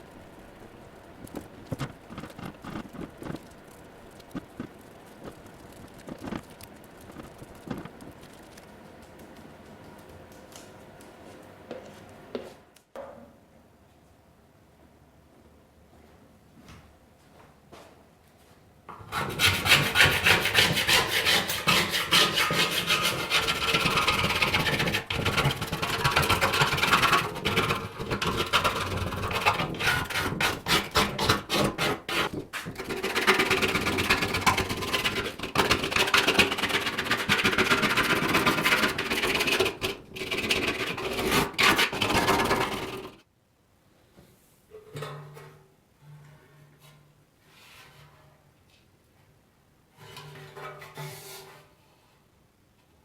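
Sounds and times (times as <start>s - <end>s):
rapid rasping strokes: 1.2s - 8.6s.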